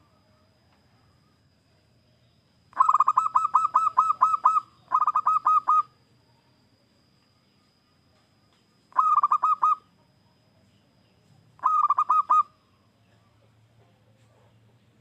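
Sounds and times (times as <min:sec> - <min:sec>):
dove cooing: 0:02.8 - 0:06.0, 0:08.9 - 0:09.9, 0:11.6 - 0:12.6.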